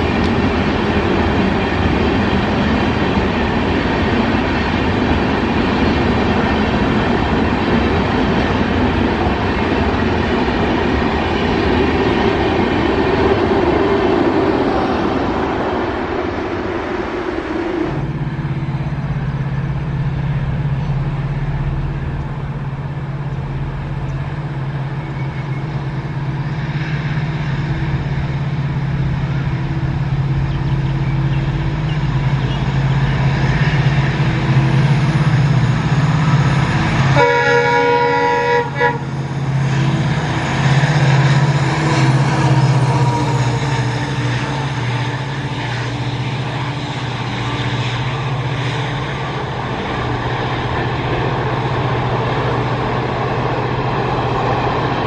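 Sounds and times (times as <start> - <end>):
express train rushing past: 0.0 - 55.0
low train drone: 0.0 - 55.0
train horn: 30.4 - 49.0.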